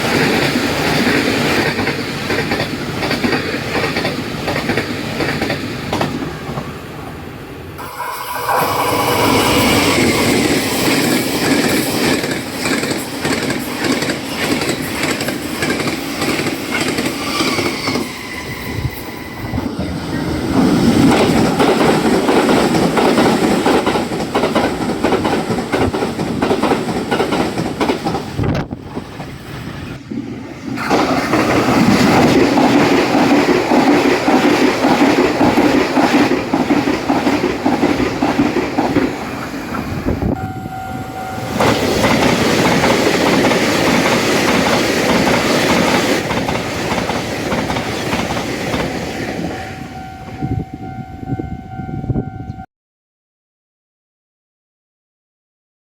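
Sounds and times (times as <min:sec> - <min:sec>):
train wheels clattering over rail joints: 0:00.0 - 0:06.7, 0:09.2 - 0:18.1, 0:20.5 - 0:29.4, 0:30.7 - 0:40.0, 0:41.5 - 0:49.4.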